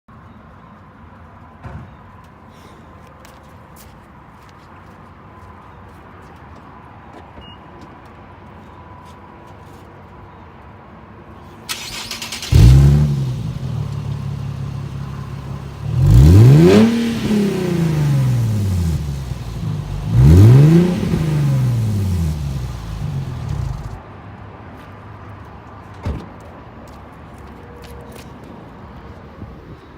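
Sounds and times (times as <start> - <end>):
car engine starting and revving: 11.7 - 24.0.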